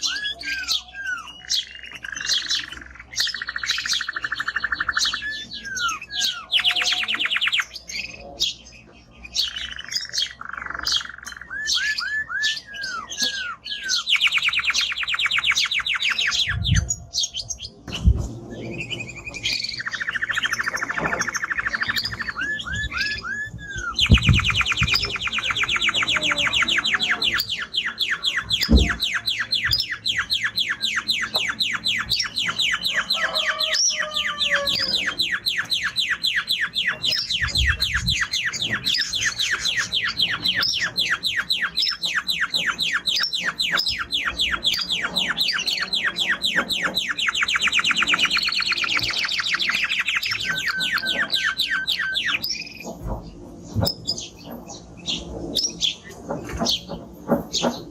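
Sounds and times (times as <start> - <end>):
canary singing trills: 0.0 - 57.9.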